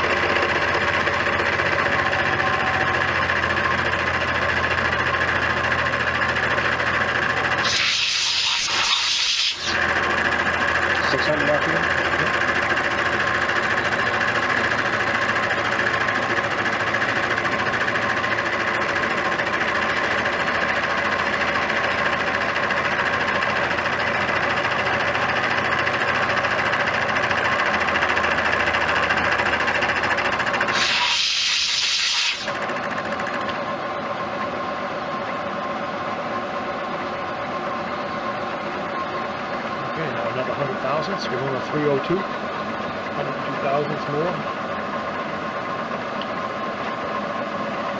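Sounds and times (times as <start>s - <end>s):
milling machine running: 0.0s - 47.9s
hiss: 7.6s - 9.8s, 30.7s - 32.5s.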